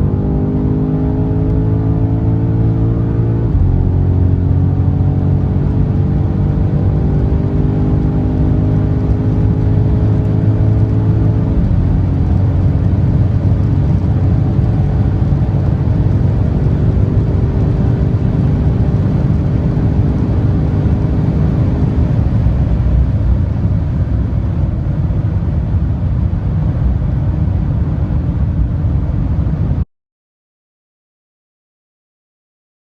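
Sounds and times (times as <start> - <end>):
tyre road noise: 0.0 - 25.5
car engine running hard: 0.0 - 29.8
wind noise: 3.4 - 29.8.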